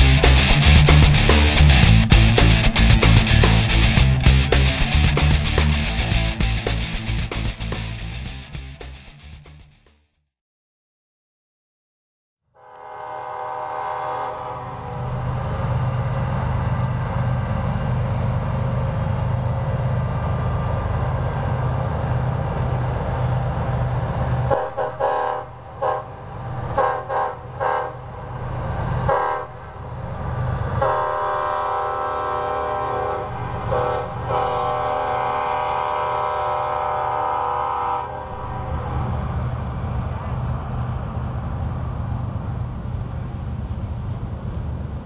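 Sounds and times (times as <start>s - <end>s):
locomotive engine rumble: 0.0s - 9.8s, 14.0s - 45.0s
train air horn blasts: 12.6s - 15.3s, 24.5s - 26.2s, 26.8s - 28.2s, 29.0s - 29.7s, 30.8s - 39.0s.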